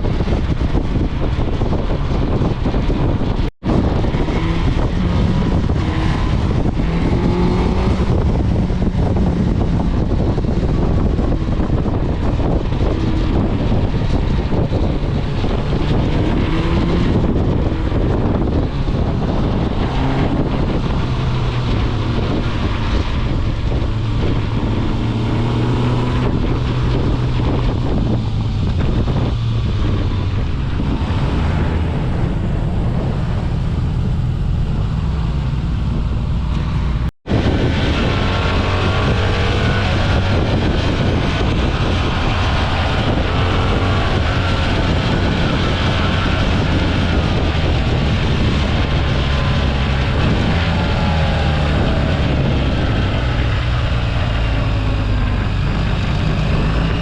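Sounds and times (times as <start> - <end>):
wind buffeting microphone: 0.0 - 57.0
motorcycle engine running: 31.9 - 38.0.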